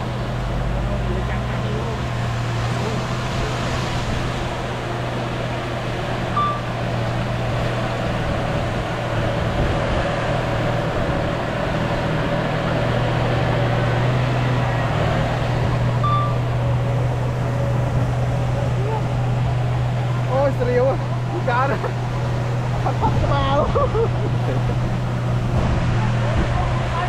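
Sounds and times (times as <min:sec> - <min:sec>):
bulldozer diesel engine running: 0:00.0 - 0:27.0
high chirps: 0:06.3 - 0:06.7.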